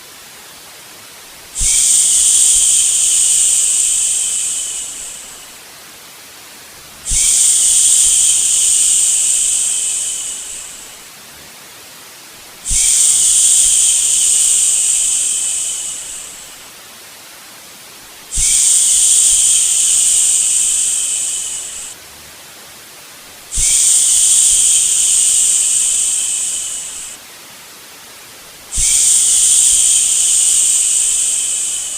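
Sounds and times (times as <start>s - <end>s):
white noise hiss: 0.0s - 31.9s
person shushing: 1.6s - 5.5s, 7.1s - 11.0s, 12.7s - 16.6s, 18.3s - 22.0s, 23.5s - 27.2s, 28.7s - 31.9s.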